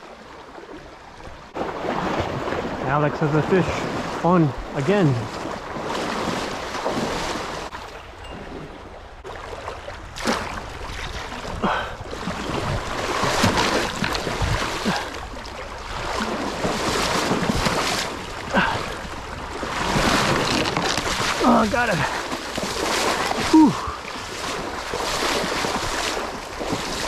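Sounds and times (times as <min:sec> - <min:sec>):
wind buffeting microphone: 0:10.0 - 0:27.0.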